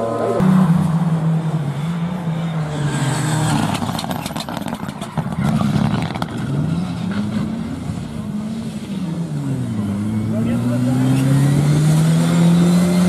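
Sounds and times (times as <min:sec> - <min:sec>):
rally car engine revving: 0:00.0 - 0:13.0
sharp clicks and clatter: 0:03.6 - 0:06.4.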